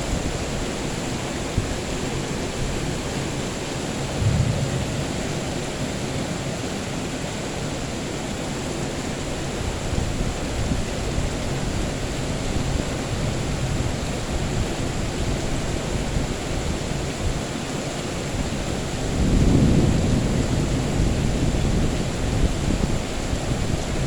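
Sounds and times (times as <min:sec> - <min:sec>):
heavy rain: 0:00.0 - 0:24.0
thunder rumble: 0:04.0 - 0:07.2, 0:19.2 - 0:23.0.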